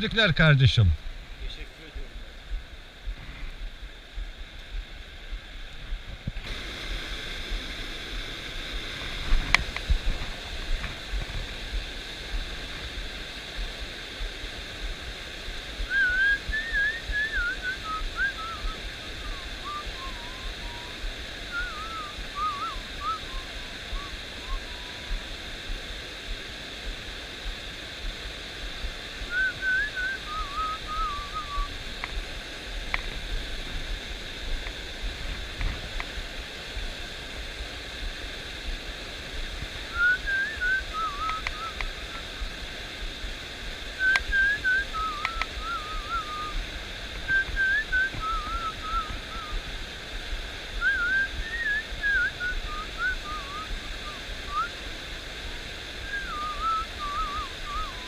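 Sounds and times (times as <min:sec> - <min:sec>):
stream rushing: 0:00.0 - 0:58.0
person whistling: 0:15.9 - 0:20.9, 0:21.5 - 0:24.9, 0:29.3 - 0:31.7, 0:39.9 - 0:41.8, 0:44.0 - 0:46.5, 0:47.3 - 0:49.6, 0:50.8 - 0:53.7, 0:56.1 - 0:58.0.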